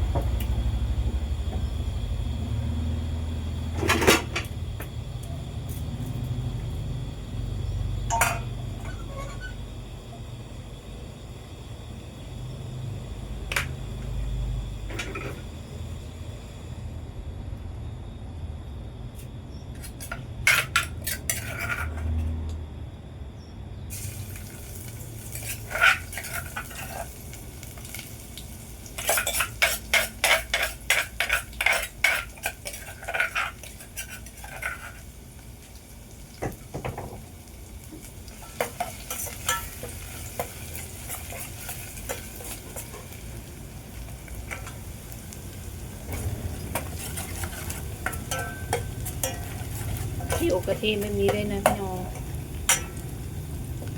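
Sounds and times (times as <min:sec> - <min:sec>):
food frying in a pan: 0:00.0 - 0:16.5, 0:23.9 - 0:53.9
utensil clinking against pan: 0:48.0 - 0:51.8, 0:52.7 - 0:53.0.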